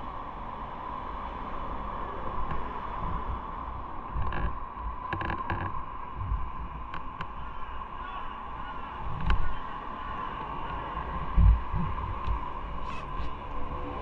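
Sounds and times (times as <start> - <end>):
wind and road noise: 0.0 - 14.0
low engine drone: 1.6 - 14.0.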